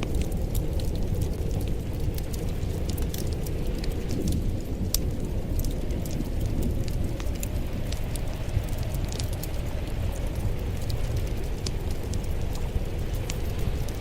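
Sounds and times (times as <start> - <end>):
low rumble of burning: 0.0 - 14.0
wood fire crackling: 0.0 - 14.0.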